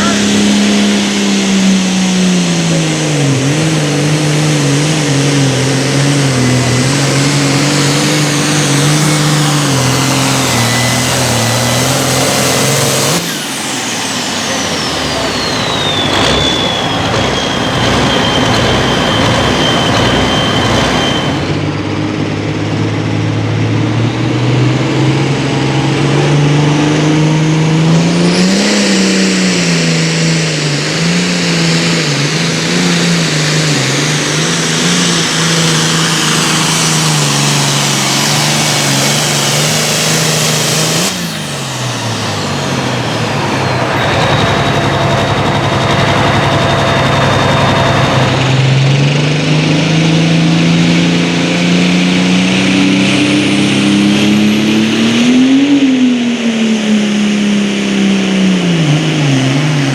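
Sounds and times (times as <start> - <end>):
diesel tractor engine under load: 0.0 - 56.7.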